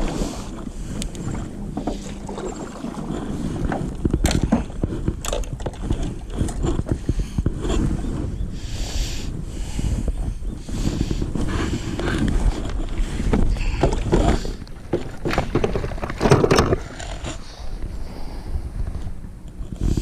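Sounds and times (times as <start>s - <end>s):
wind buffeting microphone: 0.0s - 20.0s
knocks and clatters: 13.3s - 17.2s.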